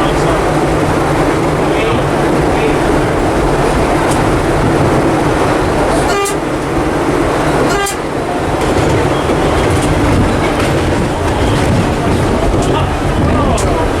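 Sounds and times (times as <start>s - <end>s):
subway train rumbling: 0.0s - 14.0s
train horn toots: 6.0s - 6.5s, 7.6s - 8.2s.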